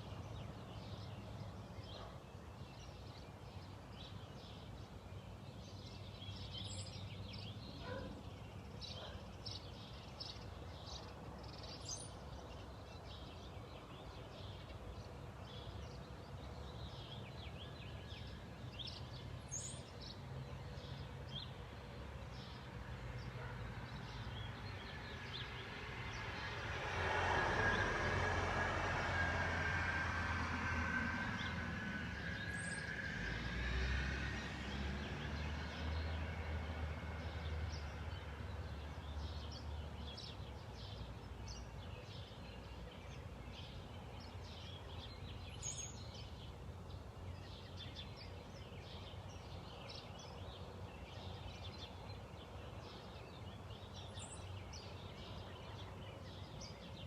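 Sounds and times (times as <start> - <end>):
small birds chirping: 0.0 - 26.6, 37.2 - 57.0
motor vehicle passing: 22.9 - 41.6.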